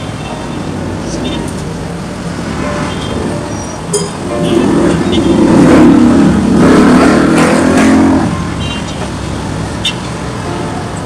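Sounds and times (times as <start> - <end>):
background traffic noise: 0.0 - 11.0
vehicle passing close by: 2.1 - 8.6.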